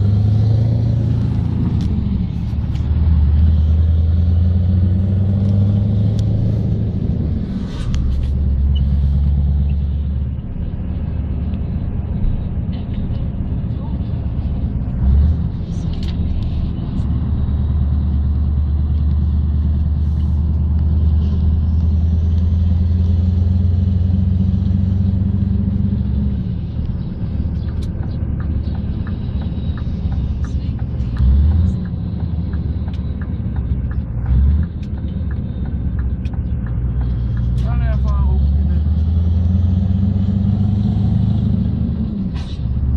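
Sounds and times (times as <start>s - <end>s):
diesel truck engine rumbling: 0.0s - 42.9s
light regular ticking: 26.6s - 37.7s.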